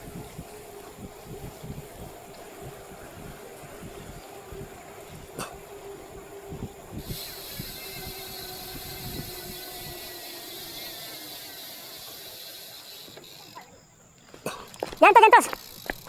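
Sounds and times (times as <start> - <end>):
wind buffeting microphone: 0.0 - 11.7
steady high hiss: 0.0 - 14.3.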